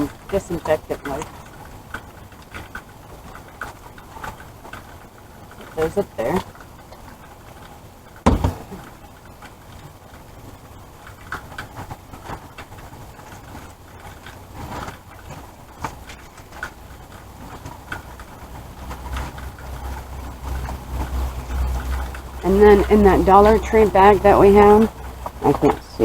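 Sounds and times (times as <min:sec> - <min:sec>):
light knocks and rustles: 0:06.4 - 0:10.4
thump in wooden box: 0:08.3 - 0:08.8
low hum: 0:15.2 - 0:26.0.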